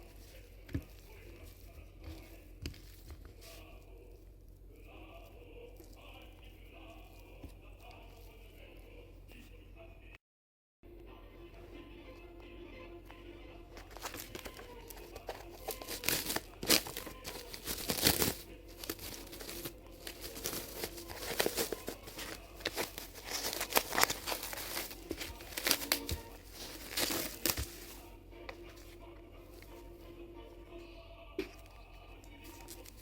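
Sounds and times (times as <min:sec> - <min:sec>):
packaging crinkling and tearing: 0:13.8 - 0:28.1, 0:32.4 - 0:33.0.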